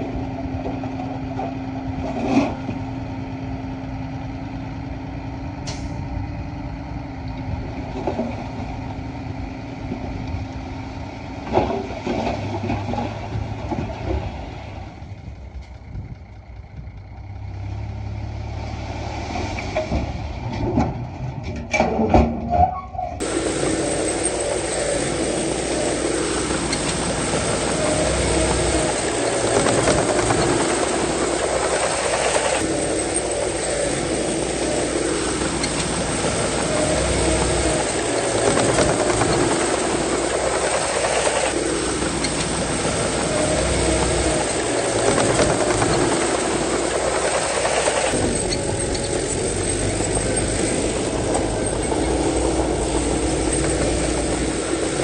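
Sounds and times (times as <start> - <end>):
bulldozer engine under load: 0.0 - 55.0
clattering tracks: 23.2 - 55.0.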